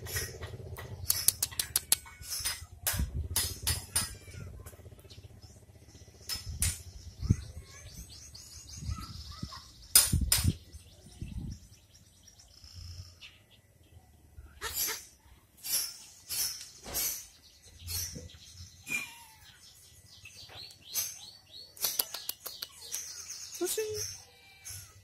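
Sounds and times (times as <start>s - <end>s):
sharp clicks and knocks: 0.0s - 4.8s, 6.2s - 7.0s, 9.9s - 10.6s
small birds chirping: 0.0s - 25.0s.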